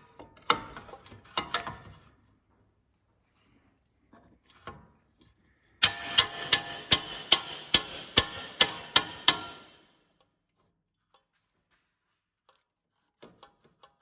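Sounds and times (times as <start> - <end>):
hammer striking metal: 5.8 - 9.9.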